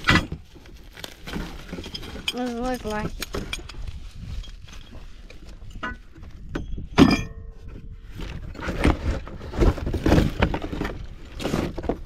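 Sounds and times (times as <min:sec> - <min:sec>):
metal parts clattering: 0:01.5 - 0:03.8
metal clank: 0:05.7 - 0:07.6.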